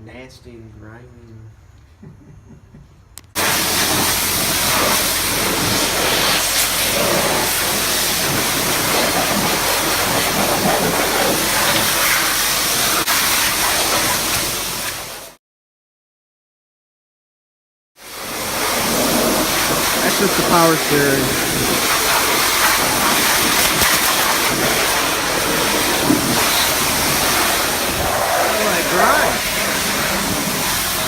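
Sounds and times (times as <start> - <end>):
pressure washer spraying hiss: 3.4 - 15.2, 18.0 - 31.0.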